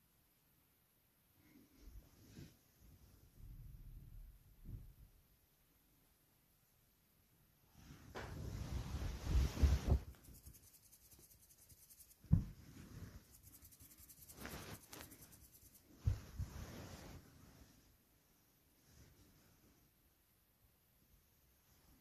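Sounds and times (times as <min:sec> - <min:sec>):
rubbing and rustling on a rug: 0:07.8 - 0:18.0
dull thumps: 0:12.2 - 0:12.8.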